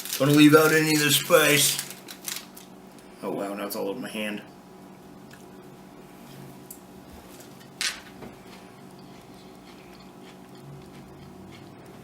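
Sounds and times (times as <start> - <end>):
chewing with faint clicks: 8.5 - 12.0.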